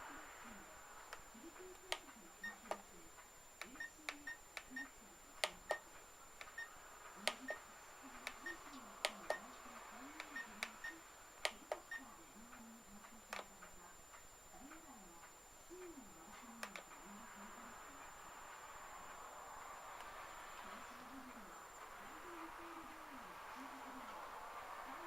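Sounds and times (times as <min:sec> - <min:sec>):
sharp clicks: 0:05.4 - 0:07.6, 0:16.6 - 0:17.0.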